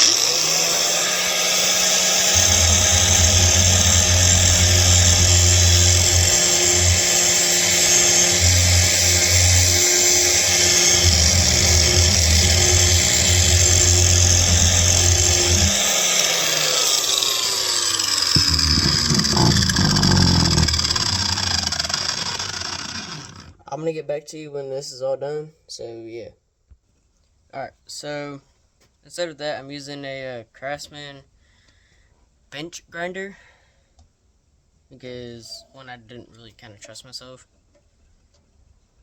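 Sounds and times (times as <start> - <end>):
angle grinder whining: 0.0 - 23.6
low rumbles of grinding disc: 0.0 - 23.6.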